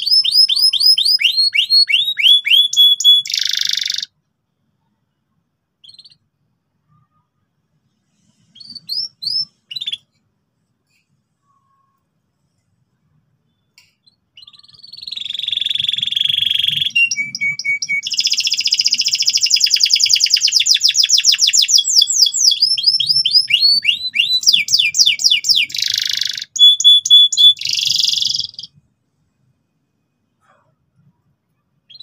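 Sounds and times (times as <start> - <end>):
canary singing: 0.0 - 4.2, 5.8 - 7.3, 8.3 - 10.2, 13.5 - 28.8.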